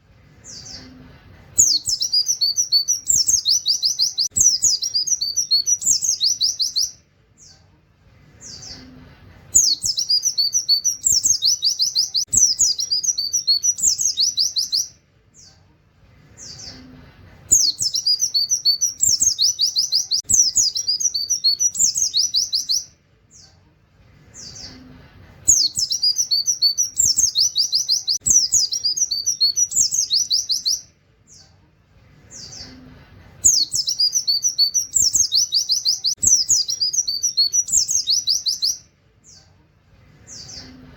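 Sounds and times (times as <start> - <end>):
bird singing high trills: 1.6 - 7.0, 9.6 - 15.0, 17.5 - 23.0, 25.5 - 30.9, 33.4 - 38.9.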